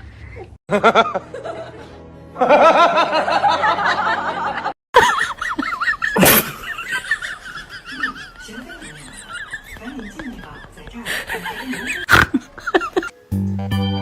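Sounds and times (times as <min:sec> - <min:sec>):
music: 0:00.7 - 0:04.7, 0:13.1 - 0:14.0
person snickering and laughing: 0:05.0 - 0:13.1.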